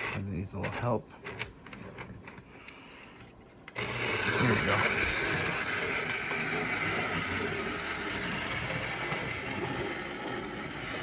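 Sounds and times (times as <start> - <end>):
model train motor whirring: 3.7 - 11.0
wheels on rails: 3.7 - 11.0.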